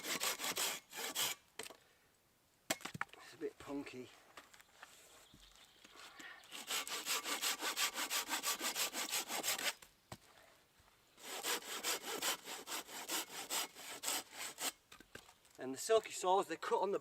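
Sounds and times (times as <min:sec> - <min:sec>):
hand saw cutting wood: 0:00.0 - 0:01.4, 0:06.5 - 0:09.8, 0:11.2 - 0:14.8.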